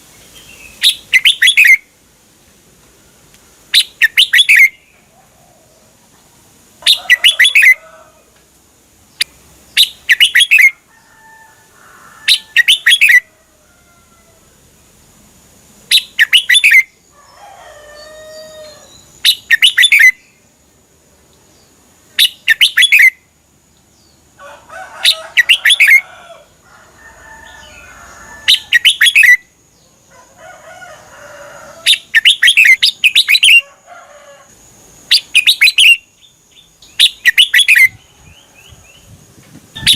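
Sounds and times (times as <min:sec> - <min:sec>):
bird singing warbling phrases: 0:00.3 - 0:01.9, 0:03.7 - 0:05.0, 0:06.8 - 0:07.8, 0:09.1 - 0:10.8, 0:12.3 - 0:13.3, 0:15.9 - 0:17.0, 0:18.0 - 0:20.4, 0:21.6 - 0:23.3, 0:25.0 - 0:26.0, 0:28.5 - 0:30.0, 0:31.8 - 0:33.6, 0:35.0 - 0:39.2.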